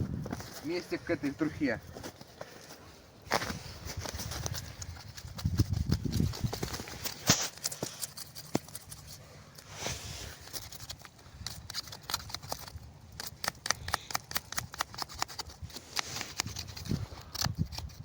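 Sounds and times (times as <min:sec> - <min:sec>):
dry twigs cracking and snapping: 0:03.3 - 0:09.1, 0:10.4 - 0:18.0.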